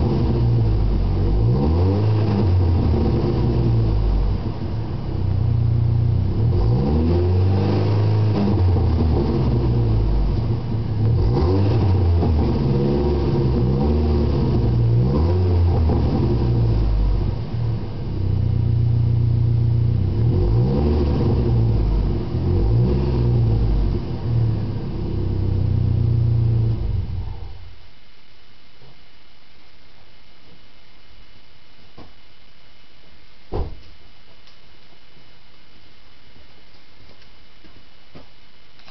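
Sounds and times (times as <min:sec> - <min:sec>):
car engine idling and revving: 0:00.0 - 0:27.7.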